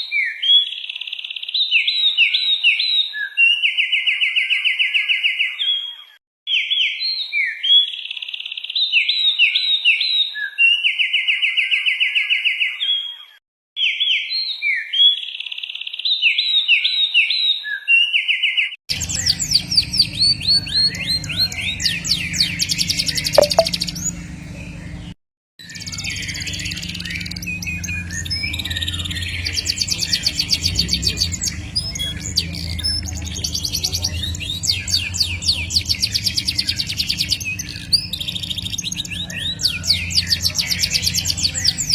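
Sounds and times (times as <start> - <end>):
high bird trilling: 18.9 - 24.1
songbird buzzy trills and whistles: 18.9 - 24.4, 25.7 - 41.9.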